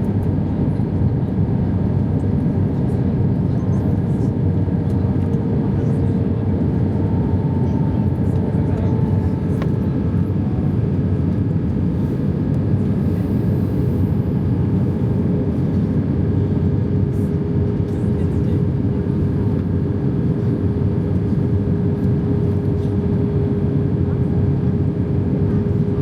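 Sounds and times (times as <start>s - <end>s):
aircraft engines rumbling in cabin: 0.0s - 26.0s.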